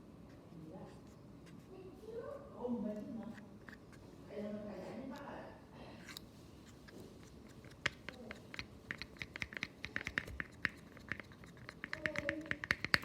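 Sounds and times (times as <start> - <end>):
sticky slime clicks and smacks: 7.6 - 13.0.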